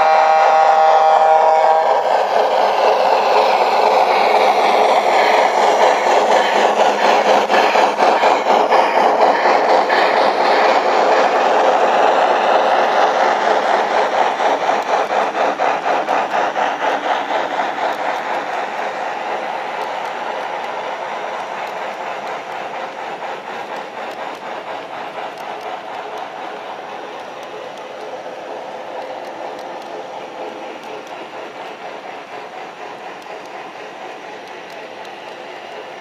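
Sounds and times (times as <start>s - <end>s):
model train wheels clacking: 0.0s - 36.0s.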